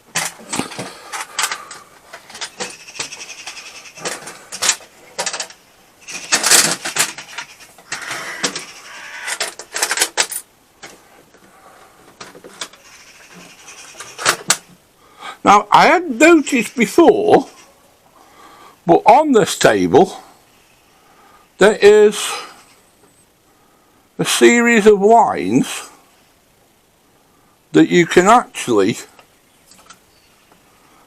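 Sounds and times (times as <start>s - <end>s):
metallic clicks and scraping: 0.0s - 11.0s, 12.1s - 14.7s.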